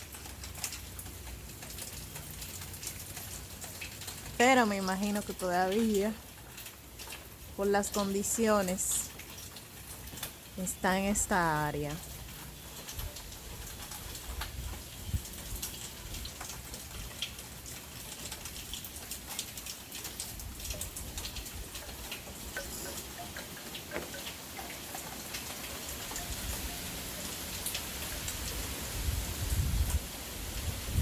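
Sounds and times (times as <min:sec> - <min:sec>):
heavy rain falling: 0:00.0 - 0:31.0
raindrops ticking on a surface: 0:00.0 - 0:31.0
low rumble of wind: 0:12.0 - 0:31.0.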